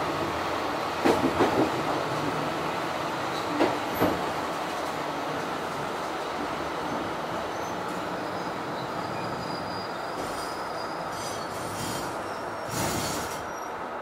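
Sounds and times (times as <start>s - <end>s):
railcar rolling noise: 0.0s - 14.0s
high wheel squeal: 6.9s - 13.8s.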